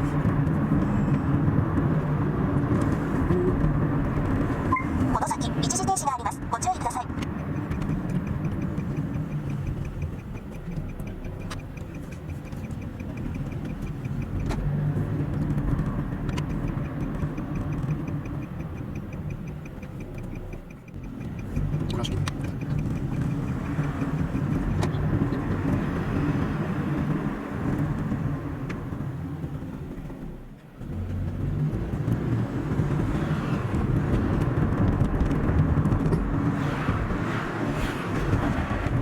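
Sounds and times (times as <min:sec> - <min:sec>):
car engine and tyre rumble: 0:00.0 - 0:39.0
fast regular ticking: 0:05.1 - 0:27.2
sharp clicks: 0:07.1 - 0:25.8.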